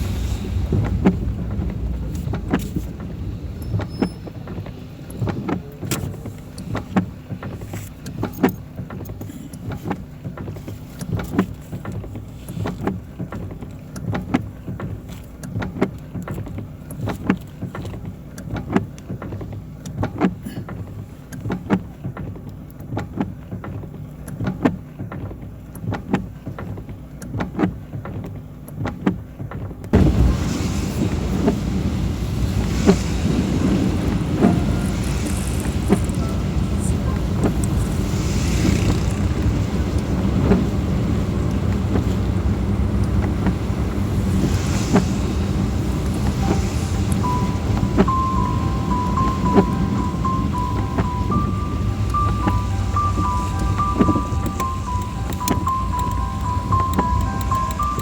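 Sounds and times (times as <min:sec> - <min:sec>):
loud hiss: 0:00.0 - 0:04.2, 0:30.0 - 0:58.0
car road and engine rumble: 0:00.0 - 0:58.0
rain ticking on car: 0:00.0 - 0:58.0.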